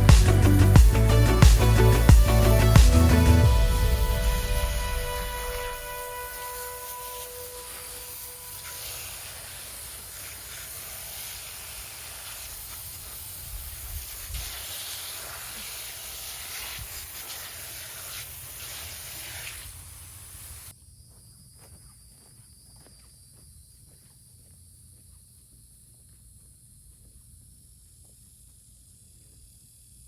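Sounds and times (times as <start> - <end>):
music: 0.0 - 8.7
steady hissing noise: 0.0 - 20.8.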